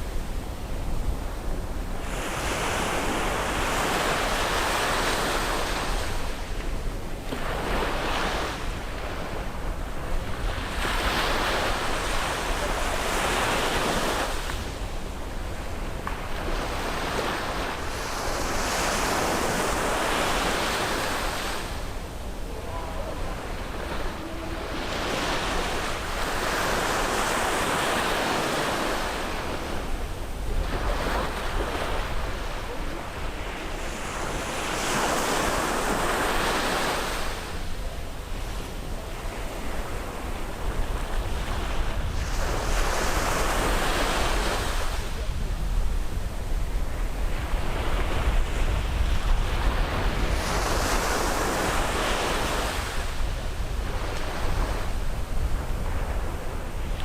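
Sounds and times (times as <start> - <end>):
sea waves breaking on beach: 0.0 - 57.0
wind buffeting microphone: 38.8 - 57.0.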